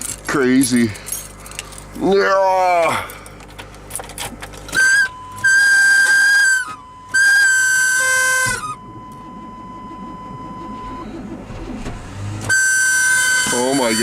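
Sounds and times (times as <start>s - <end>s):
starter motor whining: 1.5s - 14.0s
man talking: 13.5s - 14.0s.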